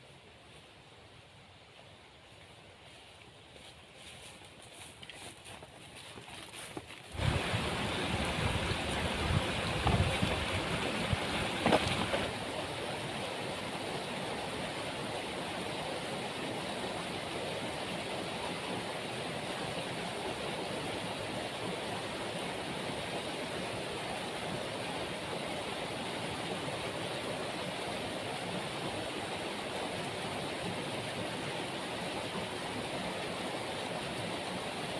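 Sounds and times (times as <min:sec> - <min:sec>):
waterfall roaring: 0:07.1 - 0:34.9
low gusty thumps: 0:07.2 - 0:12.3.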